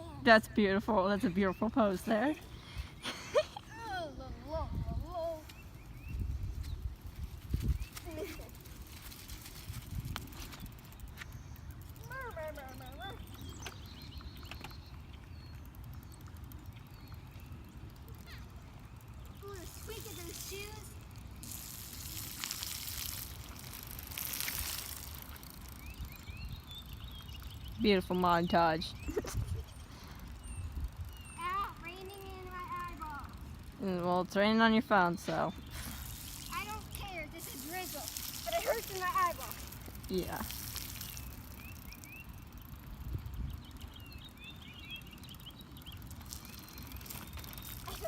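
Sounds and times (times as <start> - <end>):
wind rumbling on microphone: 4.3 - 12.2, 28.9 - 31.4, 42.5 - 44.4
drizzle hissing on wet surface: 19.4 - 25.7, 35.6 - 41.7.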